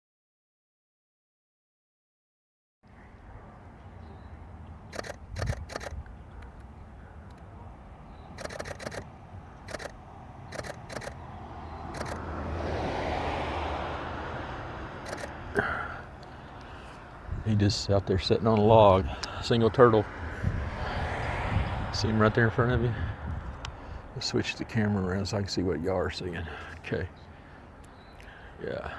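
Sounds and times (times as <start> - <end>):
distant traffic rumble: 2.9 - 28.9
camera shutter clicks: 4.9 - 6.0, 8.4 - 11.2, 11.9 - 12.2, 15.0 - 15.4.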